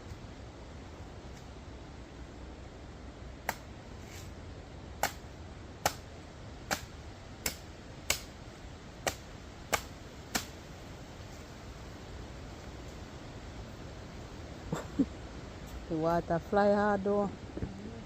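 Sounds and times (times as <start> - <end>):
machete chopping coconuts: 3.4 - 3.7, 5.0 - 5.2, 5.8 - 6.0, 6.6 - 8.3, 9.0 - 10.6.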